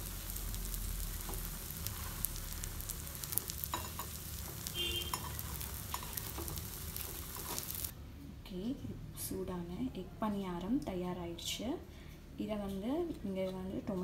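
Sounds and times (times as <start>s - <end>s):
batter frying in oil: 0.0s - 7.9s.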